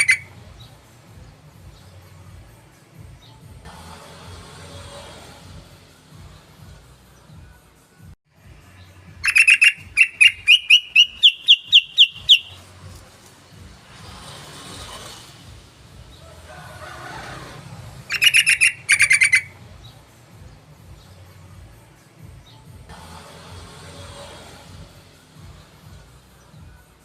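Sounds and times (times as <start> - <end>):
bird song rising notes: 9.2 - 12.8, 18.0 - 19.6.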